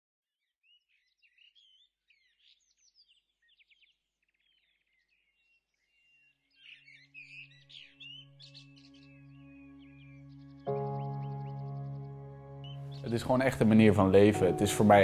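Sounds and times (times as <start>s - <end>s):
songbirds chirping and trilling: 0.4s - 15.0s
low steady musical tone: 7.5s - 15.0s.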